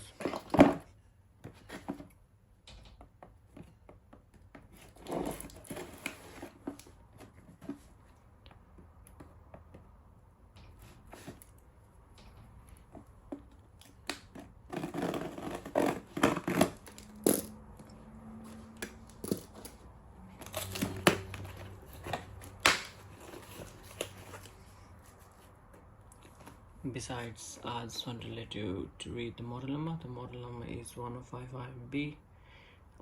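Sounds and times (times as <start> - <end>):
packaging tearing and crinkling: 20.4 - 24.5.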